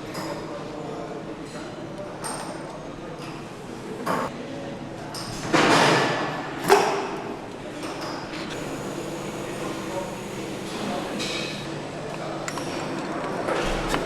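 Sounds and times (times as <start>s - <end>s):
steady machine hum: 8.5s - 12.2s.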